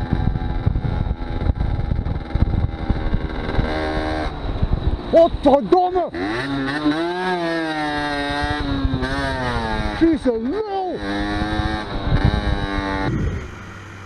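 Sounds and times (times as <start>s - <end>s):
wind noise on microphone: 0.0s - 5.9s, 7.6s - 10.0s, 11.0s - 14.0s
motorcycle engine running: 0.0s - 14.0s
man shouting a curse: 10.0s - 11.0s.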